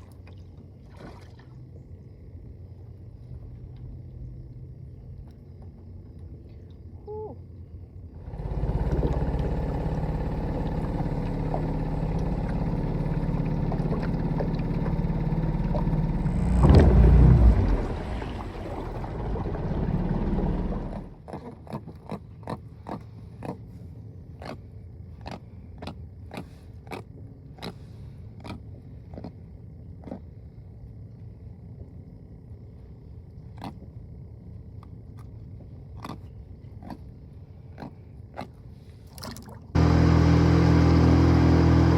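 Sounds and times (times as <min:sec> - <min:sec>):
motor running: 0:08.2 - 0:21.2, 0:39.8 - 0:41.9.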